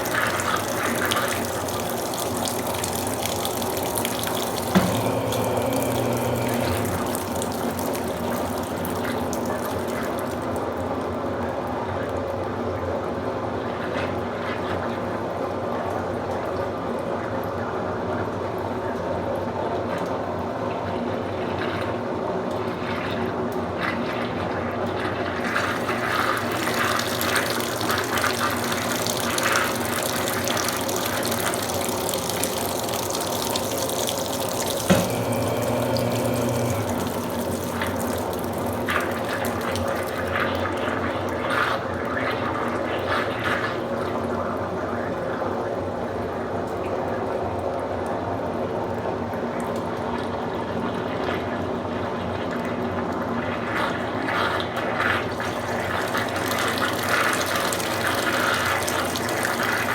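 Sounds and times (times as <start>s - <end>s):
water splashing into washing machine: 0.0s - 11.8s, 21.3s - 45.2s, 50.2s - 59.9s
short low hum: 4.5s - 7.8s, 34.9s - 38.1s.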